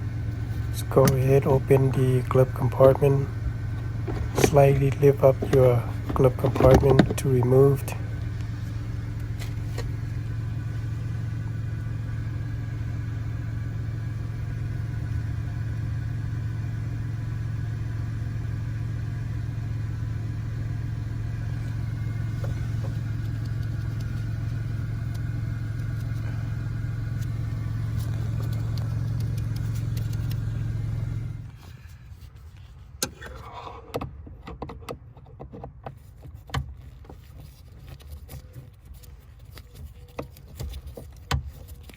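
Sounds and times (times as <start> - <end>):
motor humming: 0.0 - 31.9.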